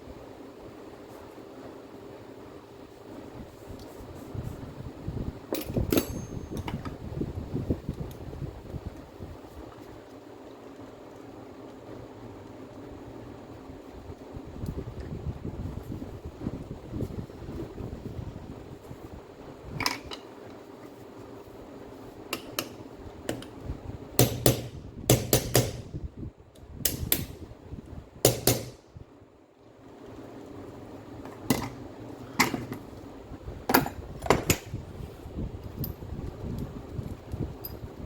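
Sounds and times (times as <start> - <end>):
metal tools knocking and clinking: 5.6 - 7.0.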